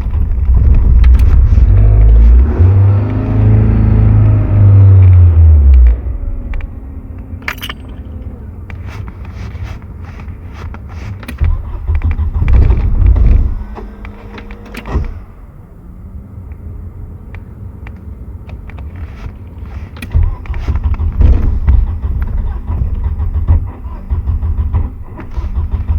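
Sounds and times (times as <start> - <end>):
car engine rumbling: 0.0 - 25.9
clicks and knocks: 5.1 - 15.2.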